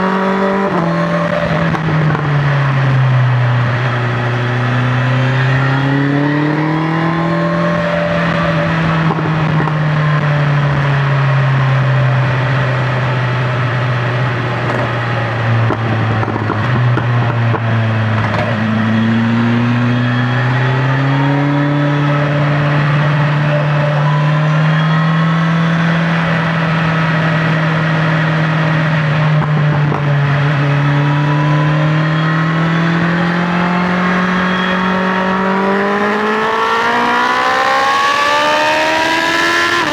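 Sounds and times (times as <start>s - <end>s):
motorcycle engine at speed: 0.0s - 39.9s.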